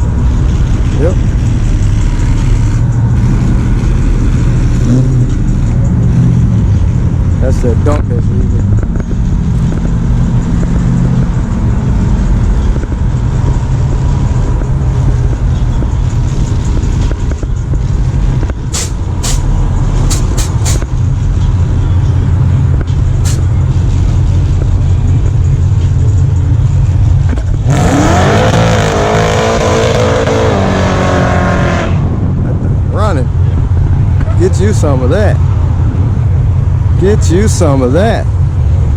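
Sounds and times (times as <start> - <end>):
car engine rumbling: 0.0 - 38.9
engine revving hard: 27.6 - 32.1.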